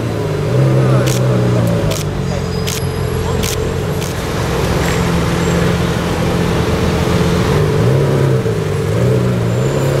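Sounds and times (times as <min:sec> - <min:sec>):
car engine idling: 0:00.0 - 0:09.0.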